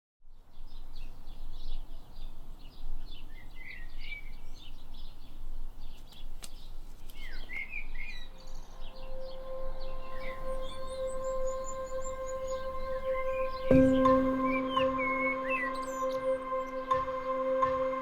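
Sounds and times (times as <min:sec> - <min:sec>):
outdoor background noise: 0:00.2 - 0:18.0
songbirds chirping: 0:00.3 - 0:18.0
held singing bowl tone: 0:08.9 - 0:18.0.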